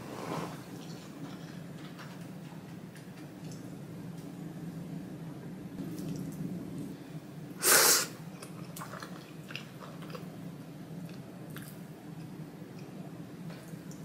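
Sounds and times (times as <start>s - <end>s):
chewing noodles: 8.4s - 10.3s.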